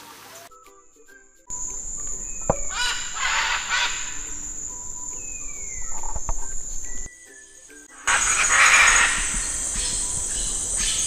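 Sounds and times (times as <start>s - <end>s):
soft background music: 0.0s - 11.0s
falling whistled bird calls: 1.4s - 11.0s
harsh noisy bird call: 1.5s - 7.1s, 8.0s - 11.0s
insect buzz: 1.5s - 11.0s.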